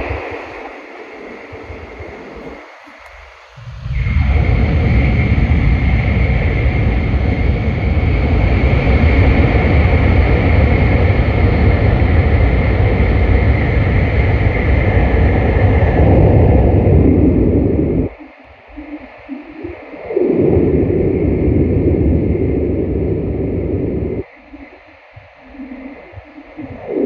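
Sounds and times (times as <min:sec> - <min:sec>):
train rumbling through tunnel: 0:03.6 - 0:17.4.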